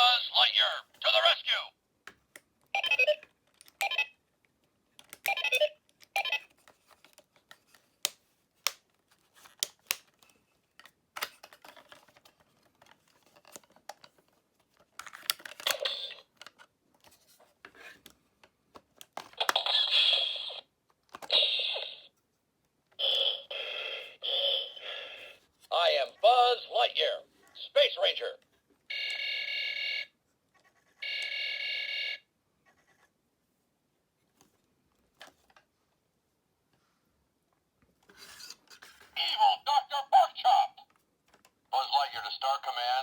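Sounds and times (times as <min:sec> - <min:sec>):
electronic toy sound effects: 0:19.4 - 0:20.7, 0:21.3 - 0:22.1, 0:23.0 - 0:25.3.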